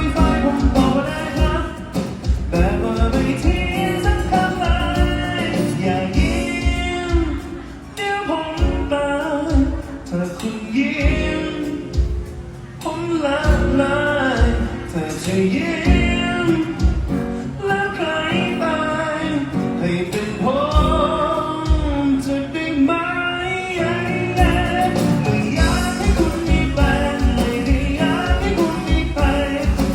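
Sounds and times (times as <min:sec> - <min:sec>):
deep bass beat: 0:00.0 - 0:07.6, 0:13.5 - 0:14.9, 0:15.9 - 0:17.2, 0:20.7 - 0:22.0, 0:24.3 - 0:29.9
folk song lead singer: 0:00.0 - 0:29.9.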